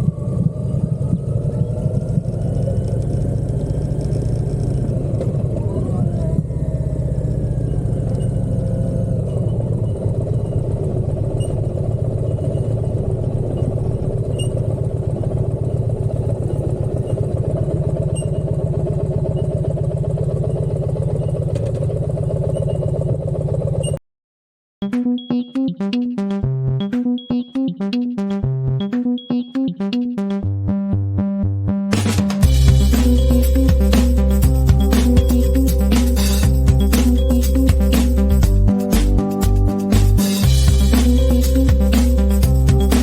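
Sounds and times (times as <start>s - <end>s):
motorcycle engine running: 0.0s - 24.0s, 31.9s - 43.0s.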